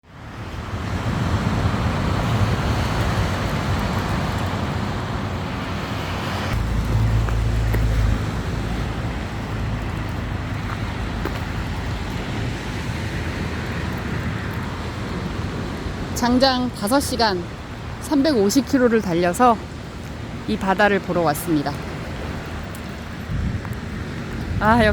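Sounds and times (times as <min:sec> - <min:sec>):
heavy low rumble: 0:06.5 - 0:18.0.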